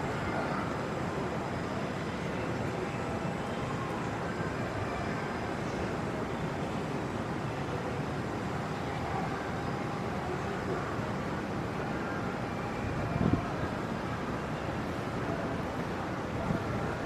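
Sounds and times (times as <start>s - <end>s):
city ambience: 0.0s - 17.0s.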